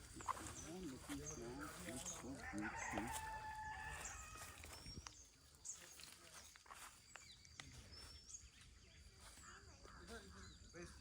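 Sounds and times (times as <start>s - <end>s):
rooster crowing: 2.4s - 4.4s.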